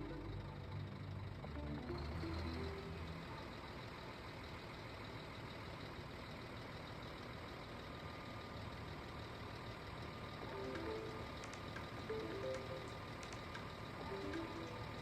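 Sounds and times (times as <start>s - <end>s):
background music: 0.0s - 3.6s, 10.5s - 13.2s, 14.0s - 15.0s
heavy vehicle engine idling: 0.0s - 15.0s.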